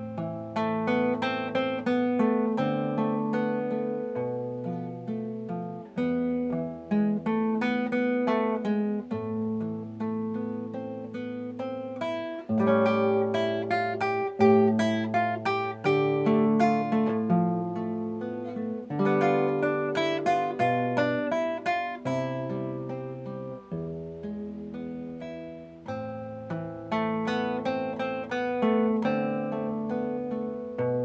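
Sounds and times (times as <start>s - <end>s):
acoustic guitar arpeggios: 0.0s - 31.0s.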